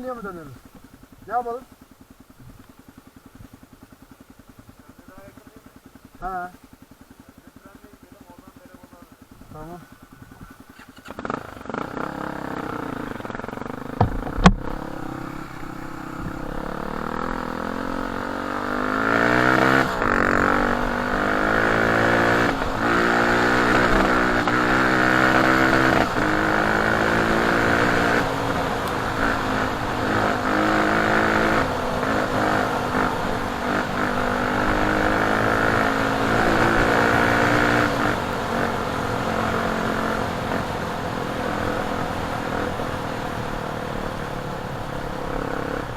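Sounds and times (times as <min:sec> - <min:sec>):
motorcycle engine revving: 0:00.0 - 0:45.9
sharp knock: 0:14.0 - 0:14.8.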